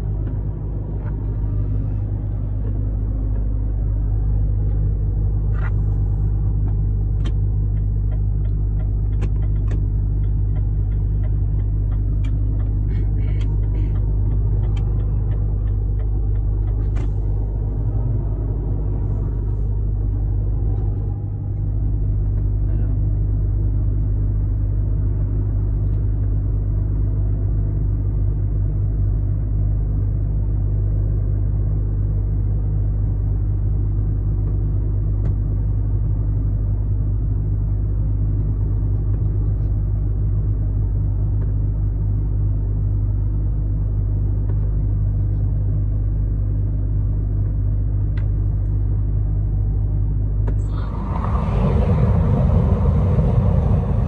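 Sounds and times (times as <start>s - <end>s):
truck engine and road rumble: 0.0s - 54.0s.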